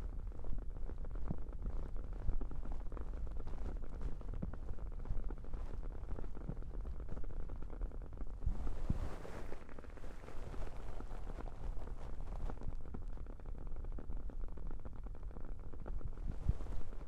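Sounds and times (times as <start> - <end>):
hands rubbing over microphone: 8.5 - 9.6.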